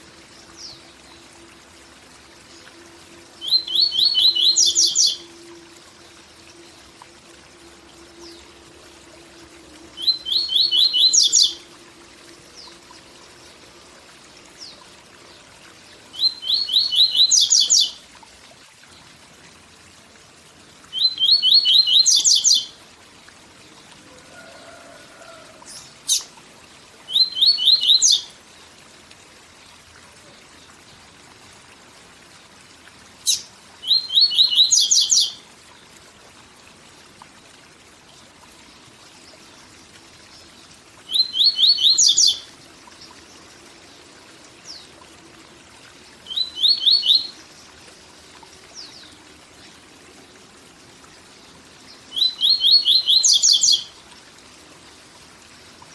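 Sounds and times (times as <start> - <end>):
waterfall rushing: 24.1 - 26.1.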